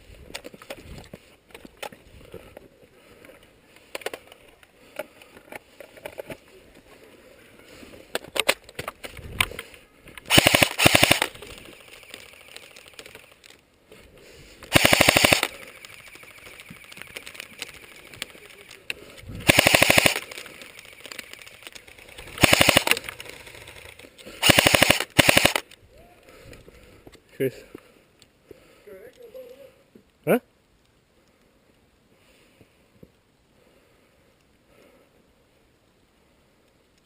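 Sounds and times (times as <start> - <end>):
faint scattered clicks: 0.2 - 31.9, 34.3 - 35.0, 36.6 - 37.0
airsoft gun firing bursts: 10.3 - 11.4, 14.7 - 16.2, 19.4 - 20.4, 22.4 - 23.0, 24.4 - 25.6.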